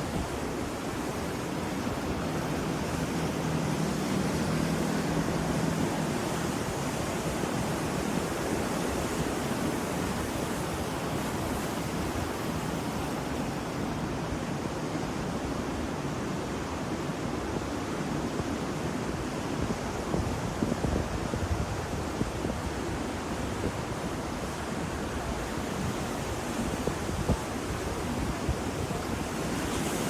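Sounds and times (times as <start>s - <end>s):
ocean waves washing on shore: 0.0s - 30.0s.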